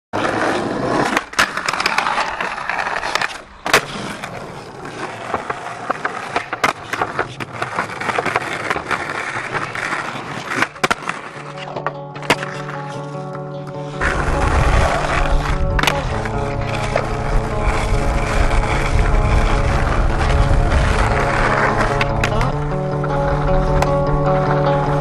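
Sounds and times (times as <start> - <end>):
skateboard clacks and knocks: 0.2 - 25.0
skateboard wheels rolling: 0.2 - 25.0
music: 10.4 - 25.0.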